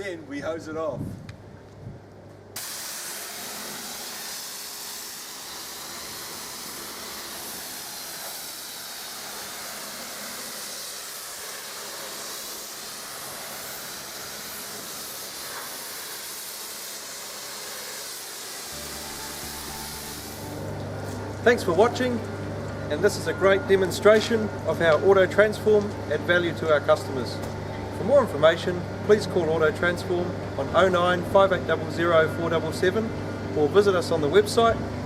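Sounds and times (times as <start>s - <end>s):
water spraying from a hose: 2.6s - 20.6s.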